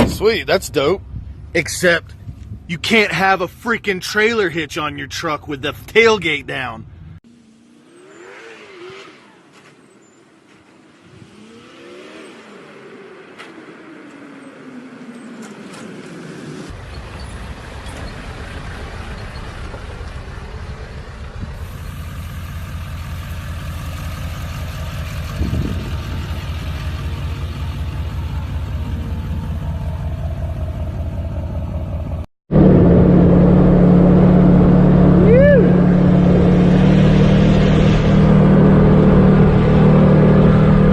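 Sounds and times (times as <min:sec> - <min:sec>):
truck engine rumble: 0:00.0 - 0:08.1, 0:12.8 - 0:40.9
loud steady engine drone: 0:20.4 - 0:40.9.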